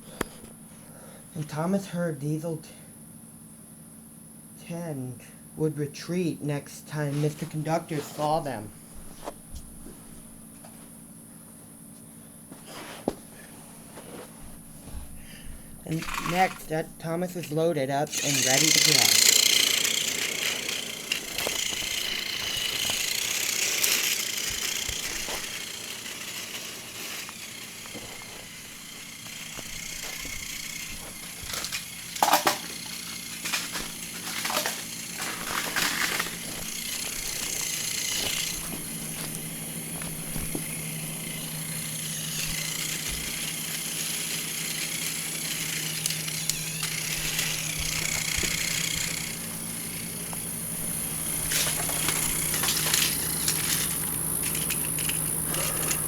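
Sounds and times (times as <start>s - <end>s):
toy train motor whirring: 15.8s - 56.0s
sharp clicks and knocks: 29.2s - 39.4s.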